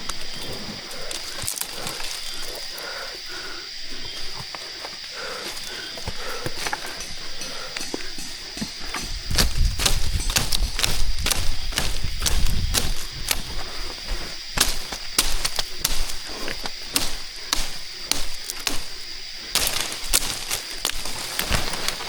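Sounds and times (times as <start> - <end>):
sharp cracks and knocks: 6.0 - 13.6, 14.5 - 22.0.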